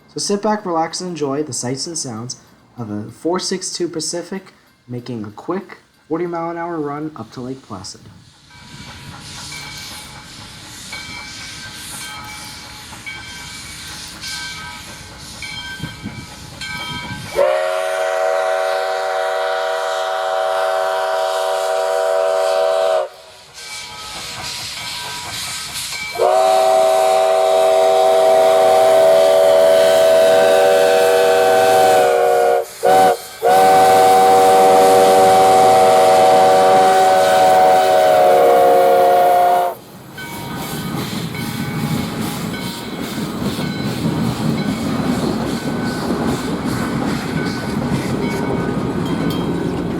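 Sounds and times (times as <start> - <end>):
train noise: 0.0 - 49.9
steam locomotive chime whistle: 8.5 - 44.0.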